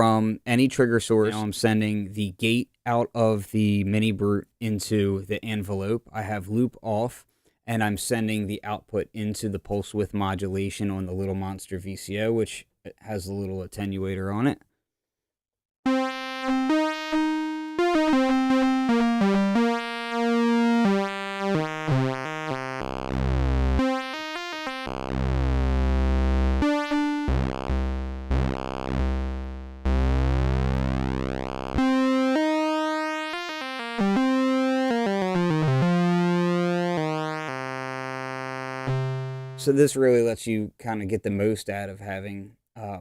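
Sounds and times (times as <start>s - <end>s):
analog synthesizer notes: 15.9s - 39.9s.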